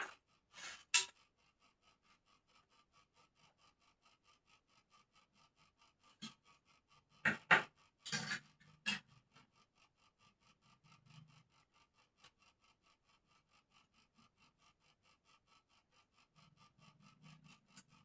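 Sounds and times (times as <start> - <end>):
faint steady ticking: 0.0 - 18.0
abrasive rubbing on bird cage: 0.5 - 1.1.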